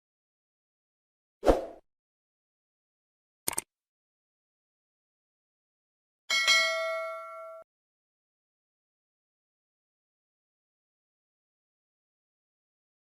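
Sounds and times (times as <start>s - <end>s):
ringing chime: 6.3s - 7.7s.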